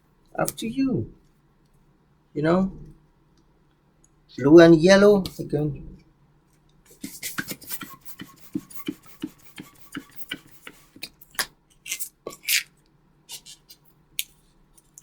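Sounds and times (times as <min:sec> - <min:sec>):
balloon scraping hisses: 0:06.9 - 0:11.0
balloons rubbing and clicking: 0:06.9 - 0:11.1.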